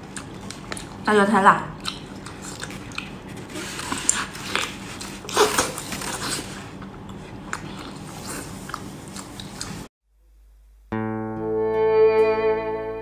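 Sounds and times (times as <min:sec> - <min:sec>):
biting and chewing: 0:00.0 - 0:01.1, 0:01.8 - 0:09.9
wet mouth clicks and smacks: 0:01.8 - 0:03.2.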